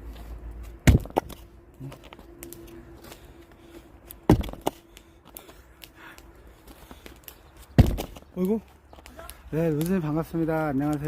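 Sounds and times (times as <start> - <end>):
axe striking log: 0.8 - 1.4, 4.3 - 4.7, 7.8 - 8.2.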